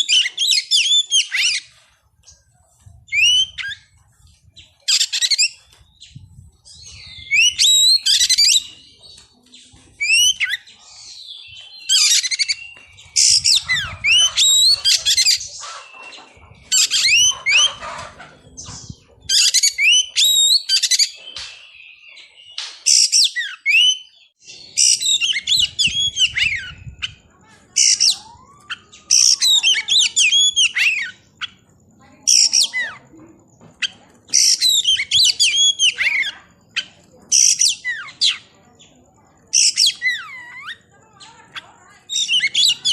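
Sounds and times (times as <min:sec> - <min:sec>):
bird singing whistles: 0:03.1 - 0:03.9, 0:04.9 - 0:08.8, 0:19.4 - 0:22.1, 0:27.8 - 0:31.6.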